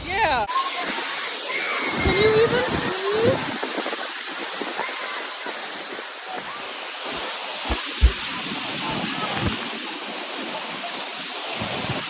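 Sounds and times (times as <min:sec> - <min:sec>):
waterfall running: 0:00.0 - 0:12.0
short low thumps: 0:07.7 - 0:08.5.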